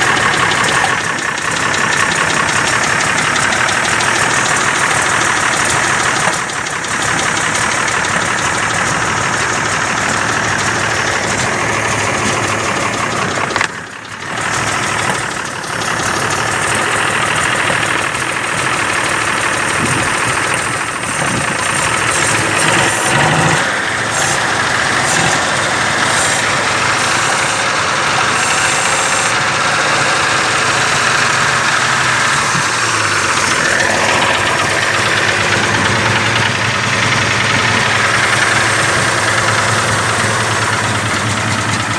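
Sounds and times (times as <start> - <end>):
truck engine running: 0.0 - 41.9.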